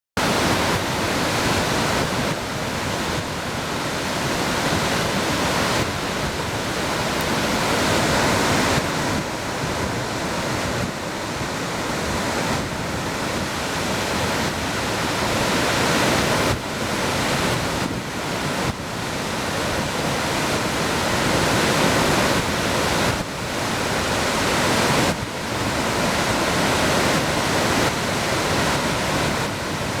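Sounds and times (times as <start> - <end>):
waterfall rushing: 0.2 - 18.5.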